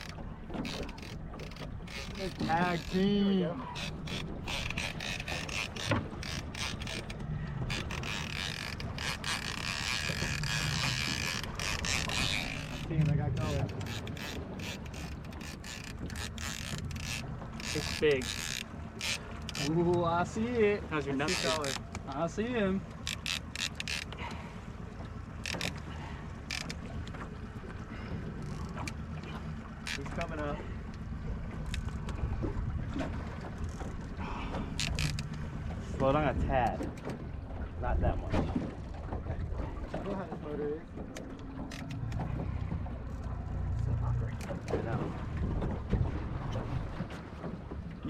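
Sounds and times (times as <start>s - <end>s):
fishing reel clicking and creaking: 0.0s - 20.3s, 21.2s - 22.3s, 23.0s - 24.3s, 25.4s - 27.2s, 28.3s - 29.0s, 29.7s - 31.0s, 31.6s - 32.2s, 33.5s - 35.6s, 41.1s - 42.3s
outboard motor running: 0.0s - 48.0s.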